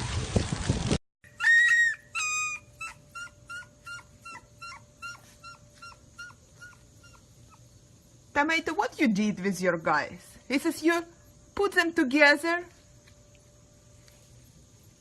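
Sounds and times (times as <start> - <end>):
dog yelping: 1.2 - 7.7
dog howling: 1.3 - 7.3.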